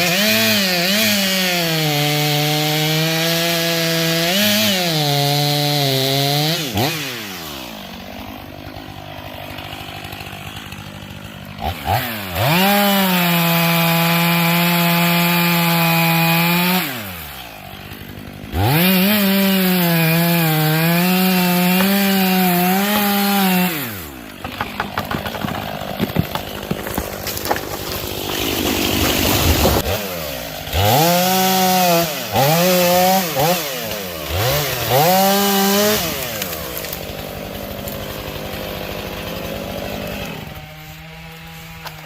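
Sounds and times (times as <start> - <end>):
chainsaw cutting wood: 0.0 - 42.0
sharp knocks: 24.4 - 28.4.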